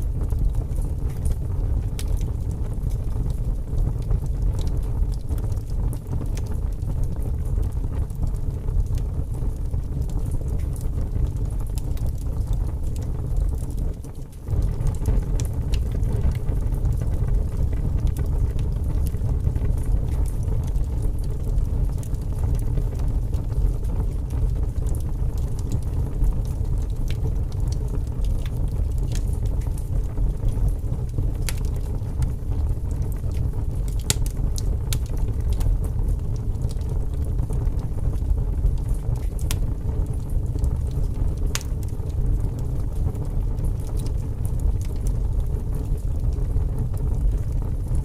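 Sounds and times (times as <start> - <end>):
wood fire crackling: 0.0 - 48.0.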